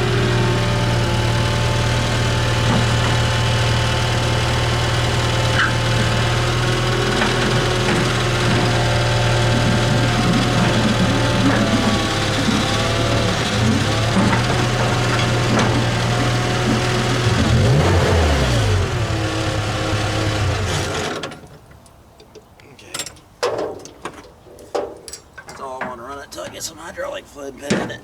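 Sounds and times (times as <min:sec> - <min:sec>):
skid steer engine running: 0:00.0 - 0:21.6
clicks and knocks: 0:27.7 - 0:28.0.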